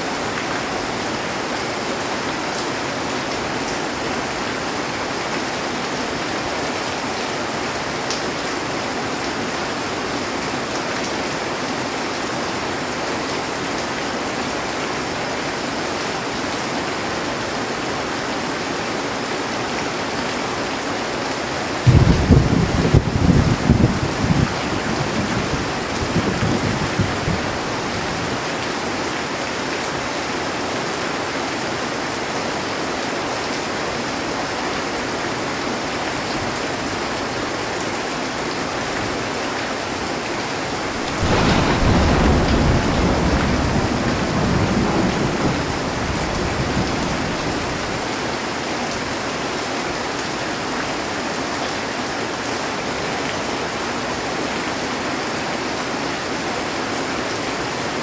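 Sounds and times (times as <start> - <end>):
heavy rain on a metal roof: 0.0 - 58.0
thunderclap: 21.9 - 28.4, 40.7 - 48.1
low rumble of thunder: 21.9 - 28.5, 40.8 - 48.1.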